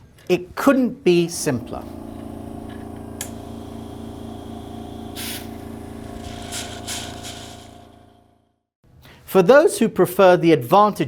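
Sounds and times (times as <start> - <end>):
machine mechanical hum: 1.2 - 8.4
short bursts of hiss: 5.0 - 7.9.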